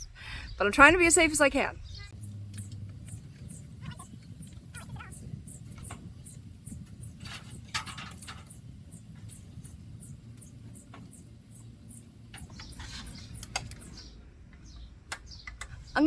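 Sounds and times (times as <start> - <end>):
low steady rumble: 0.0 - 16.0
high-pitched chirping: 1.7 - 7.7.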